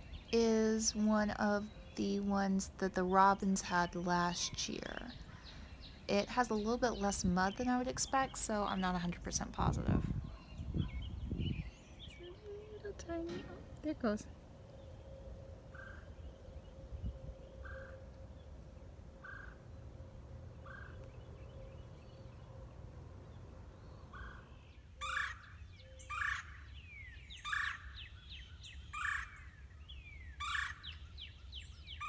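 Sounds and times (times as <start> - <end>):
bird loud harsh call: 24.1 - 29.6, 30.3 - 31.3.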